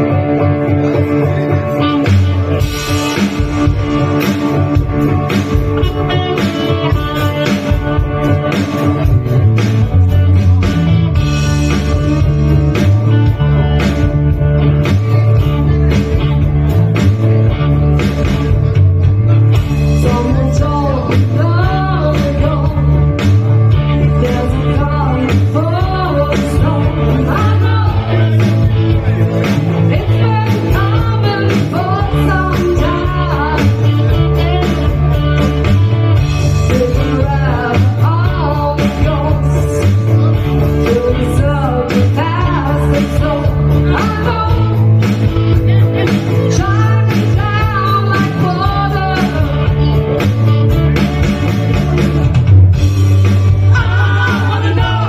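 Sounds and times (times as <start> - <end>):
rock band playing: 0.0 - 55.0
person singing: 19.8 - 35.7, 36.4 - 50.3, 53.5 - 55.0.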